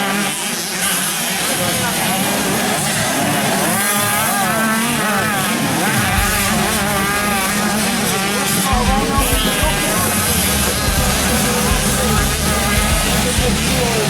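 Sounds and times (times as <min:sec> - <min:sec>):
motocross bike engines revving: 0:00.0 - 0:14.0
deep engine rumble: 0:05.9 - 0:14.0.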